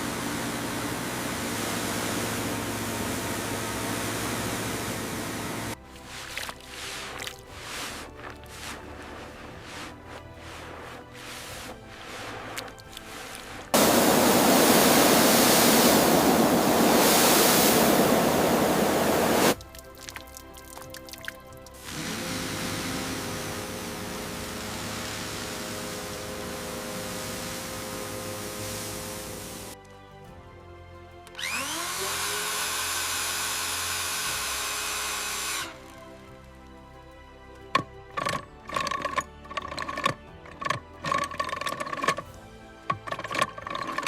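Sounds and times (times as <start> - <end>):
hiss: 0.0 - 8.0, 11.4 - 19.6, 21.8 - 29.8, 31.5 - 35.8
water jet spraying: 0.0 - 29.8, 31.4 - 36.0
power tool whining: 13.8 - 19.6, 21.8 - 29.8, 31.3 - 35.8.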